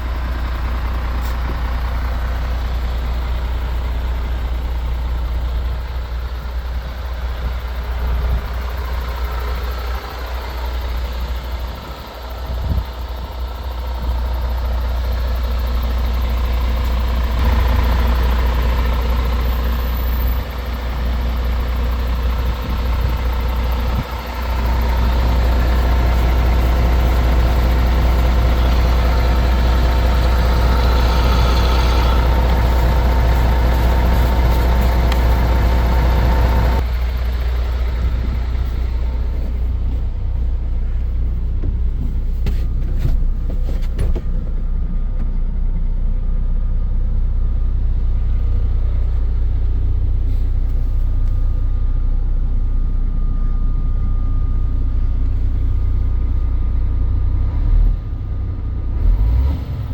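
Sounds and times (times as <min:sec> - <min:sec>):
truck diesel engine idling: 0:00.0 - 0:59.3.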